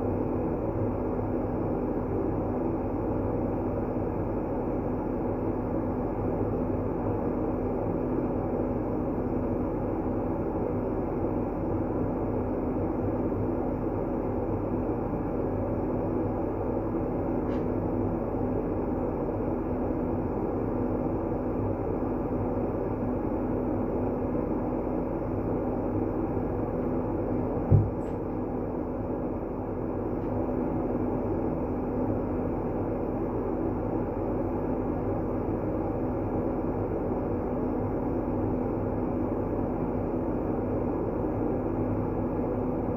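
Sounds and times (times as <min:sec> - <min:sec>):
faint constant hum: 0:00.0 - 0:42.9
steady deep white noise: 0:00.0 - 0:42.9
short low thump: 0:27.6 - 0:28.2.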